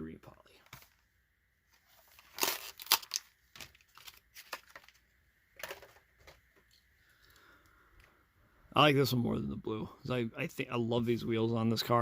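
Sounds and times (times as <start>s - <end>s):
plastic packaging tearing and crinkling: 2.0s - 5.0s.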